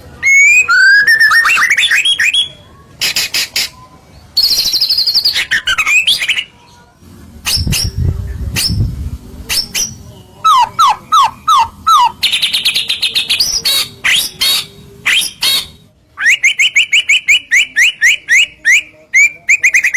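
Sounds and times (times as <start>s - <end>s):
bird singing varied whistles: 0.2s - 3.2s, 4.4s - 6.4s, 9.5s - 19.9s
low rumble: 7.6s - 9.5s.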